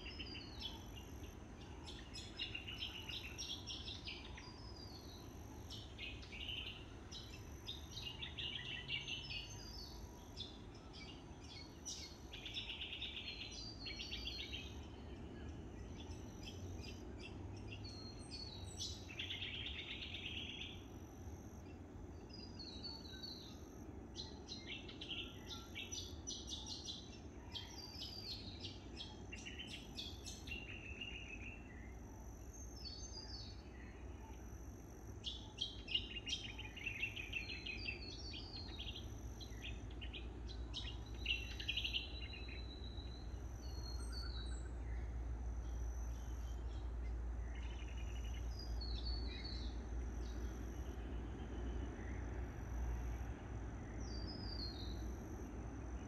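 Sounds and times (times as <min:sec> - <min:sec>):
birds chirping and trilling: 0:35.2 - 0:52.2.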